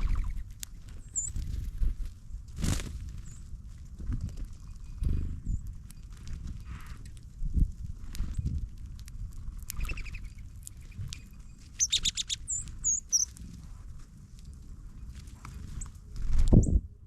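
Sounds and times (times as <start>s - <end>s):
songbirds chipping: 0.0s - 1.8s, 9.2s - 13.5s.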